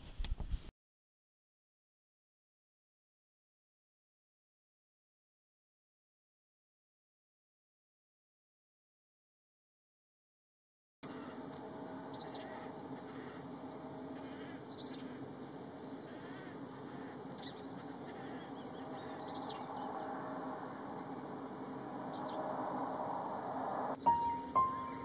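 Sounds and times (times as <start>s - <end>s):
low background hum: 11.0s - 25.0s.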